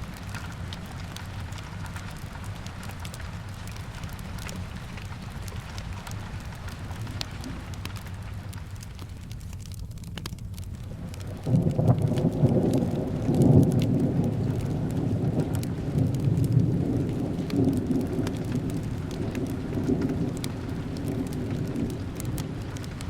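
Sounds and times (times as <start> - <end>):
fireplace crackles: 0.0 - 23.0
steady rain: 0.0 - 23.0
rolling rumble of thunder: 10.8 - 23.0.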